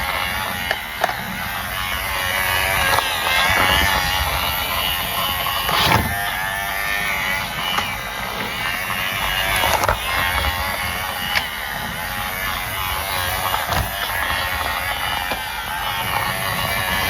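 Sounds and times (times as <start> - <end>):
sharp clicks: 0.0 - 17.0
small electric motor whirring: 0.0 - 17.0.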